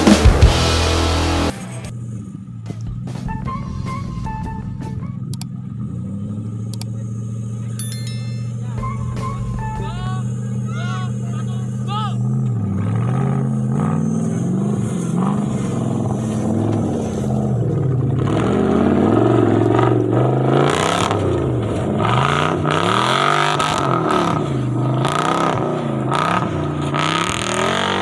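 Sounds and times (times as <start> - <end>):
off-road vehicle engine revving: 0.0 - 1.5, 10.4 - 28.0.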